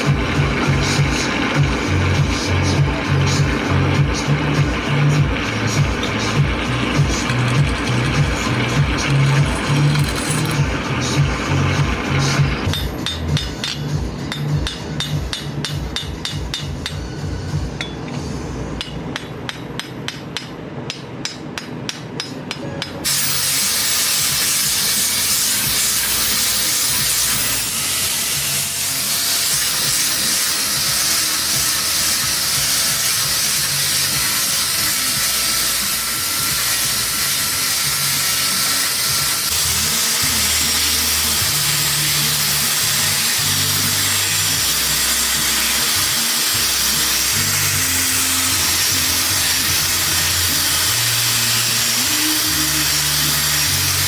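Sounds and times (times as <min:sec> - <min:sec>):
loud steady hiss: 0:23.0 - 0:54.0.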